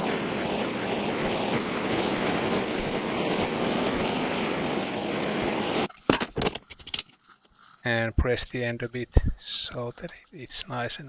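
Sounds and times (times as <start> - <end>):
gas torch flame: 0.0 - 6.5.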